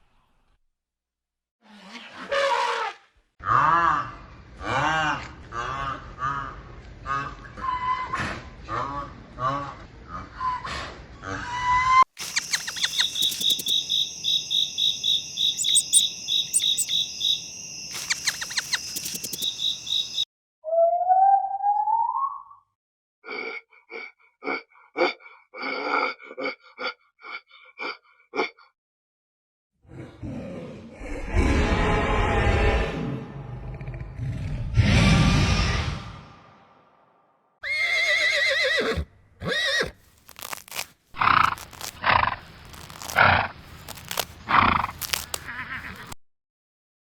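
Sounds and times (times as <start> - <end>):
short harsh animal calls: 12.2 - 14.0, 15.4 - 17.0, 17.9 - 20.0
farm animal calling: 12.2 - 20.2, 37.8 - 46.2
horse whinnying: 37.6 - 40.0.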